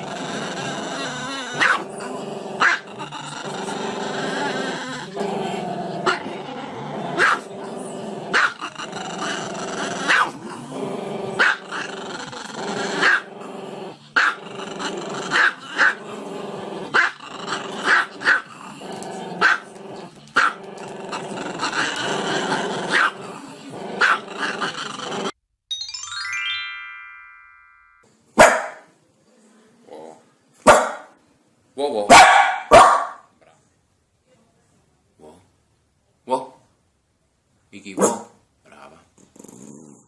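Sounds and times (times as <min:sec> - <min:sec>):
dog growling: 0:00.0 - 0:25.4, 0:38.7 - 0:40.0
dog barking: 0:01.6 - 0:01.8, 0:07.2 - 0:07.5, 0:08.3 - 0:08.6, 0:10.1 - 0:10.4, 0:11.4 - 0:11.6, 0:13.0 - 0:13.2, 0:19.4 - 0:19.6, 0:22.9 - 0:23.2, 0:24.0 - 0:24.2, 0:28.4 - 0:28.9, 0:30.6 - 0:31.2, 0:32.1 - 0:33.3, 0:38.0 - 0:38.4.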